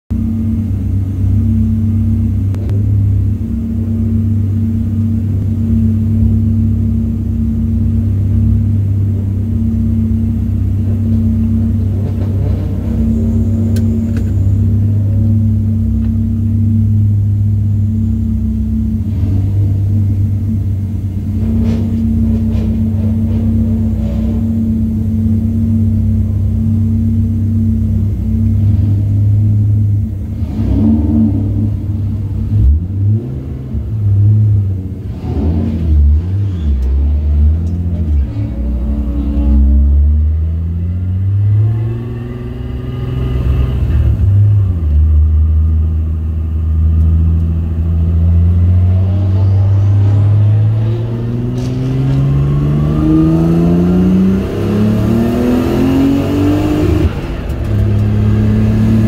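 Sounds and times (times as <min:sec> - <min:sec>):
race car engine idling: 0:00.1 - 0:55.2, 0:56.0 - 0:59.0
cars rolling past: 0:02.6 - 0:16.9, 0:18.1 - 0:46.1, 0:46.8 - 0:59.0.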